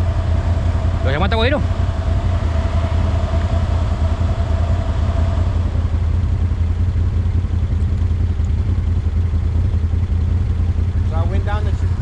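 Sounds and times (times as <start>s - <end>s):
engine idling with low hum: 0.0s - 12.0s
faint steady whine: 0.0s - 12.0s.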